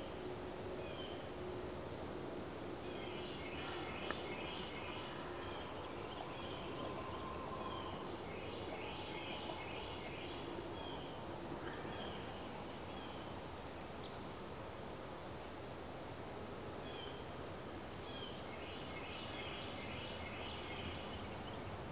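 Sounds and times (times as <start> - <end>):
birds chirping: 2.9 - 14.2.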